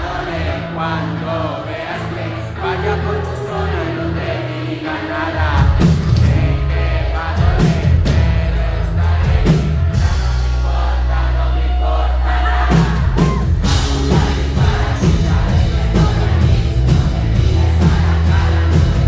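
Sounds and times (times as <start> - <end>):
person singing: 11.2 - 19.0
live band playing: 12.7 - 19.0.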